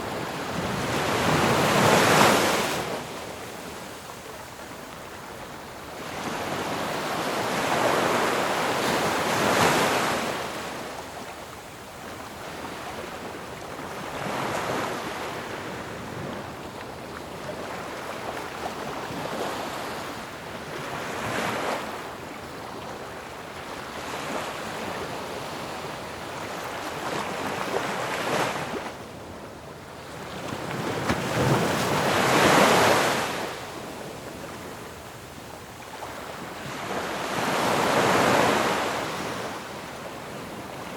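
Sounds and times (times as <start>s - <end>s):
sea waves breaking on shore: 12.0s - 40.9s.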